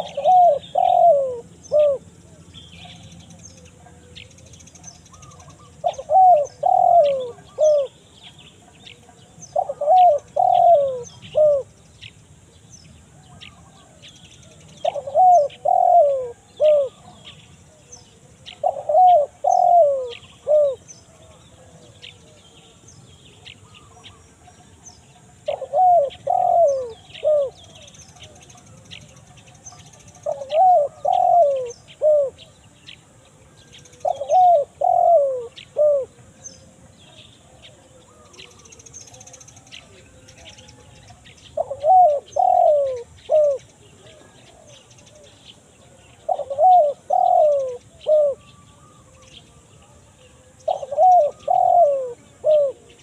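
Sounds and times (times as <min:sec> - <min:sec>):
faint small bird chirps: 0:00.0 - 0:33.0
dove cooing: 0:00.0 - 0:53.0.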